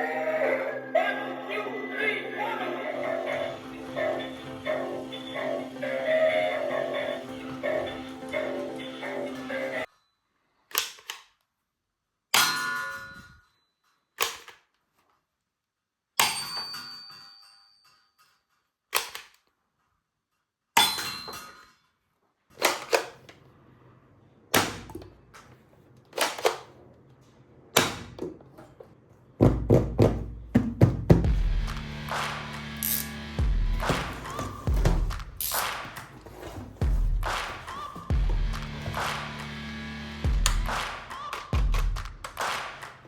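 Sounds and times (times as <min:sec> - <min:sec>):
plastic toy pieces clicking: 0:18.9 - 0:19.5.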